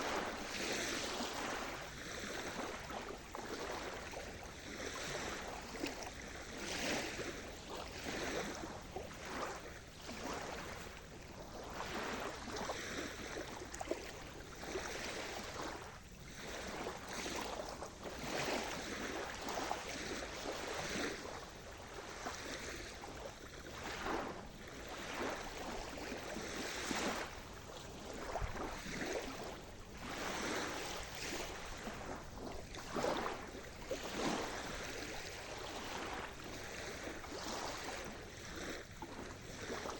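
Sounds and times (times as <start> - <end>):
waves washing onto shore: 0.0 - 39.9.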